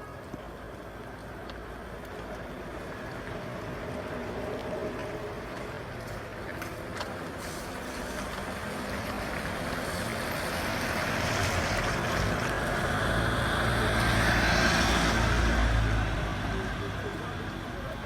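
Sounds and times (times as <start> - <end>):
vehicle passing: 7.4 - 18.0.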